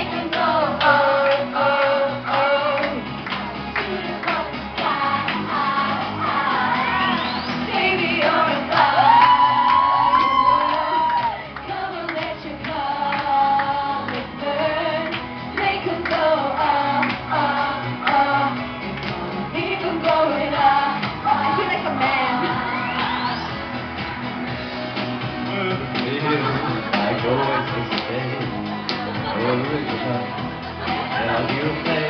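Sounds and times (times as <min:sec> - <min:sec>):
person singing pop song: 0:00.0 - 0:24.6, 0:25.2 - 0:32.0
backing track: 0:00.0 - 0:32.0.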